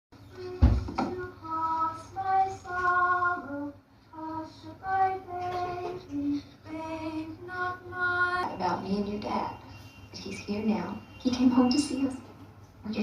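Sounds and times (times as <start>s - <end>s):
high voice singing lullaby: 0.2s - 9.2s.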